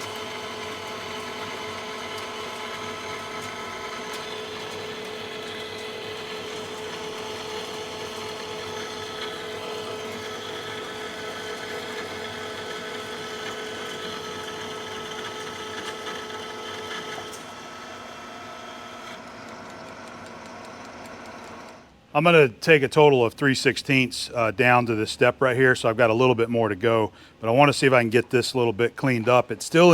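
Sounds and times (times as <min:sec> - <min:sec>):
lathe machine whine: 0:00.0 - 0:21.8.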